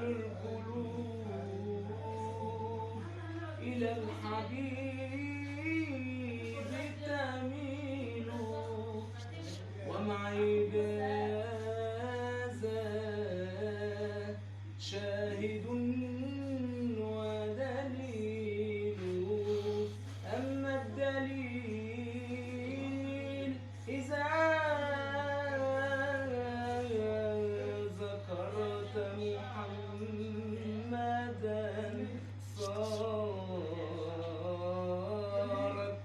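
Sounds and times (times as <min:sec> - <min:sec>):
man chanting: 0:00.0 - 0:36.0
steady low hum: 0:00.0 - 0:36.0.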